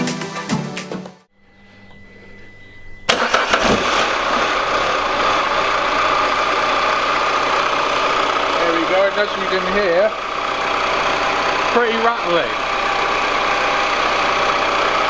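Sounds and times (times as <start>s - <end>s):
car engine starting: 3.0s - 15.0s
car engine idling with rattle: 3.1s - 15.0s.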